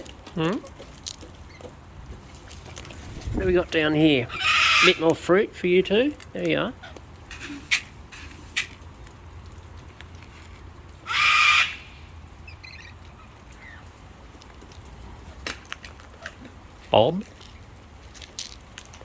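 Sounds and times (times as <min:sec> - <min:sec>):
cockatoo screech: 0:04.3 - 0:05.0, 0:11.1 - 0:12.0.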